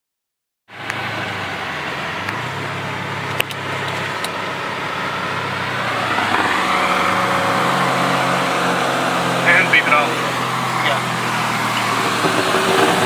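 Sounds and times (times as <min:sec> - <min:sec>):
car engine running: 0:00.7 - 0:13.0.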